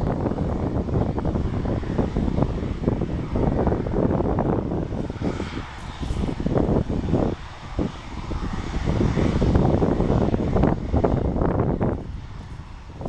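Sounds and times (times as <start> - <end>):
airliner engines roaring: 0.0 - 13.0
wind buffeting microphone: 0.0 - 13.0.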